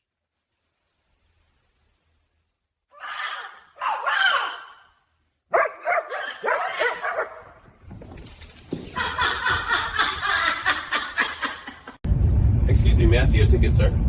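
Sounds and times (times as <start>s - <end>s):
animal barking and yipping calls: 3.0s - 4.9s, 5.5s - 7.7s.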